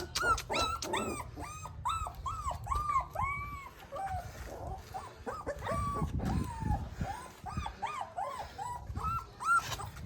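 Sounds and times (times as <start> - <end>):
puppy whining: 0.0 - 10.0.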